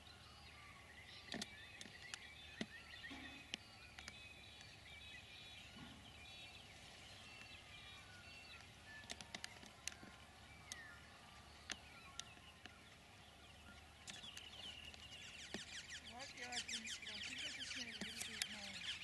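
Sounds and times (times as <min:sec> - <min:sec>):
faint birdsong: 0:00.0 - 0:19.0.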